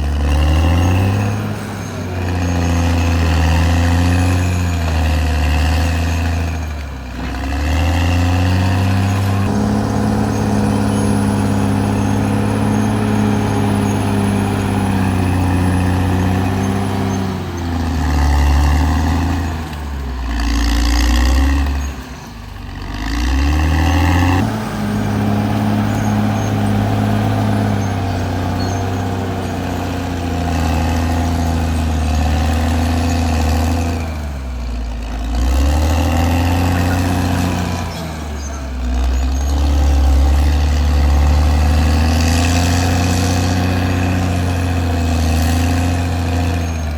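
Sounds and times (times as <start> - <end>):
bulldozer diesel engine under load: 0.0 - 46.9.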